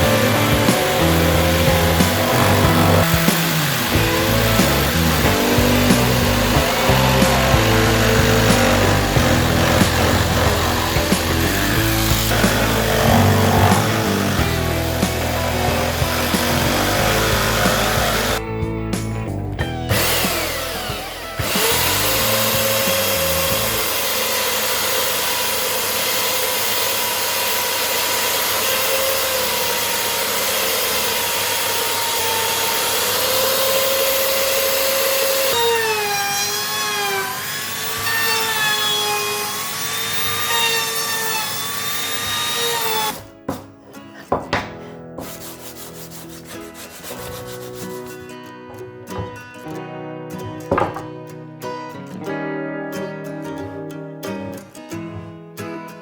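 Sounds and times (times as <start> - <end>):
rasping of wood sanding: 0.0 - 18.4, 44.2 - 48.3
sanding machine motor whine: 0.0 - 18.4, 19.9 - 43.2.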